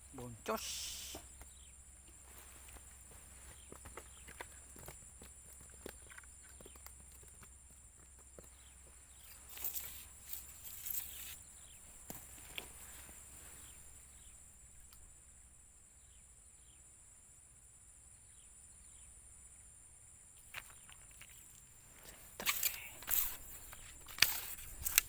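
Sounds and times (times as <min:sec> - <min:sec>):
high-pitched insect drone: 0:00.1 - 0:01.3, 0:09.2 - 0:11.7
rustling footsteps: 0:00.9 - 0:14.1, 0:20.6 - 0:25.0.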